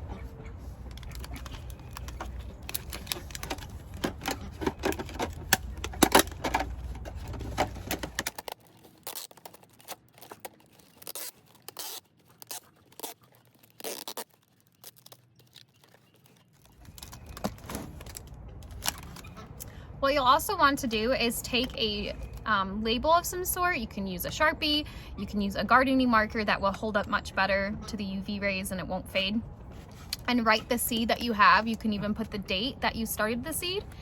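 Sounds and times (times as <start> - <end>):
tape ripping off roll: 0.8 - 19.4.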